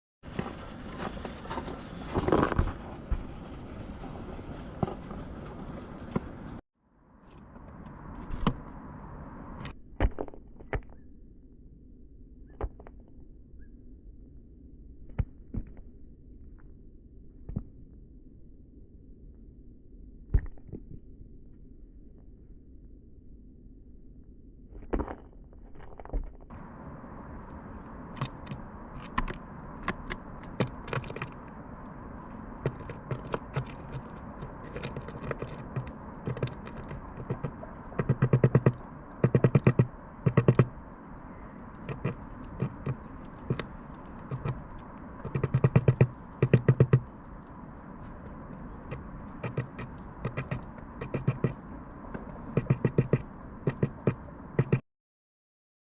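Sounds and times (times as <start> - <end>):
bird beak tapping: 32.6 - 40.8, 41.8 - 47.1, 48.9 - 51.6, 52.2 - 54.8.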